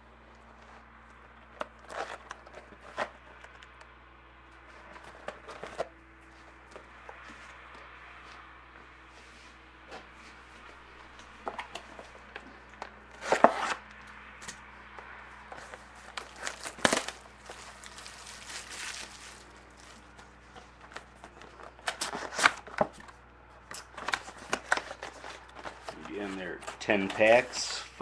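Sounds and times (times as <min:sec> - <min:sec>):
plastic shrink-wrap tearing: 0:16.2 - 0:20.1.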